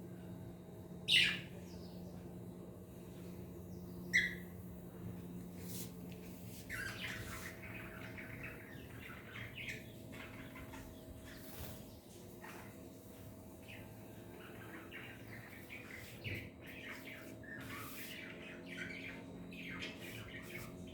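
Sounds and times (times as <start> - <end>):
cockatiels chirping: 1.1 - 1.5, 4.1 - 4.4, 6.7 - 11.7, 13.7 - 20.9.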